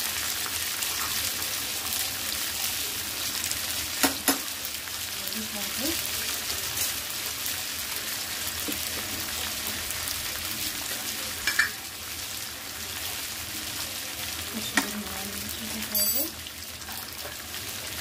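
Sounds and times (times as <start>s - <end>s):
food sizzling in hot oil: 0.0s - 18.0s
spoon clinking against pan: 11.4s - 11.8s, 15.9s - 16.4s.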